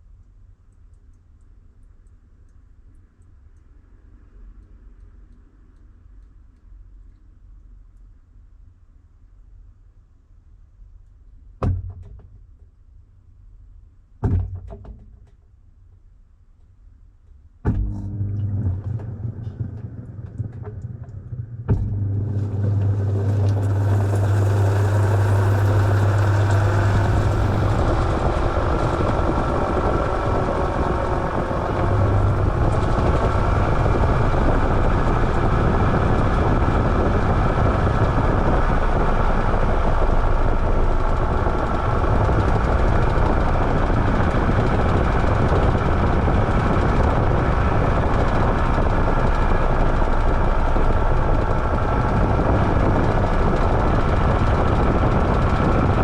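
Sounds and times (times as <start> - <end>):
washing machine running: 17.7 - 56.0.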